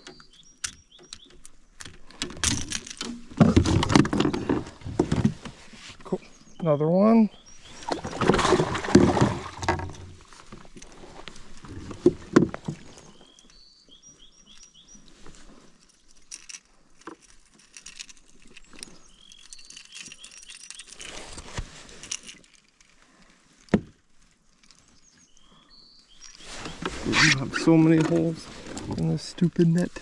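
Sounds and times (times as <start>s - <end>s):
birds chirping: 0.0s - 2.4s, 6.0s - 10.1s, 12.6s - 15.7s, 18.4s - 21.4s, 24.6s - 30.0s
clicks and rustles of handled gear: 0.0s - 6.1s, 9.7s - 30.0s.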